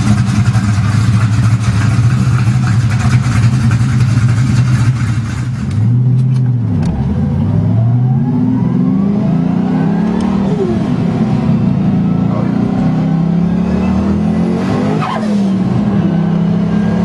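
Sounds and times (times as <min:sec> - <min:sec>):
car engine revving: 0:00.0 - 0:17.0
rising turbo whine: 0:06.6 - 0:17.0.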